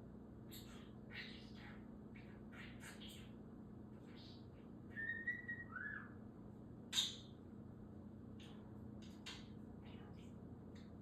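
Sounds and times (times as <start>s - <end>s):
budgerigar chirping: 4.1s - 6.2s
budgerigar whistling: 4.9s - 6.2s.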